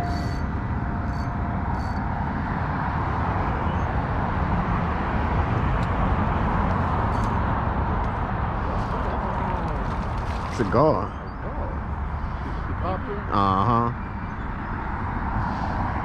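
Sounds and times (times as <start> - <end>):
outdoor rushing noise: 14.7 - 16.0.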